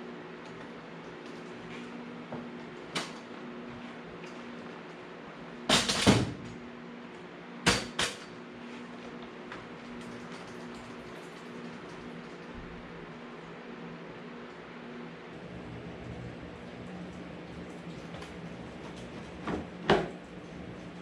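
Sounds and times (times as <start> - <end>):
steady hum: 11.7 - 21.0.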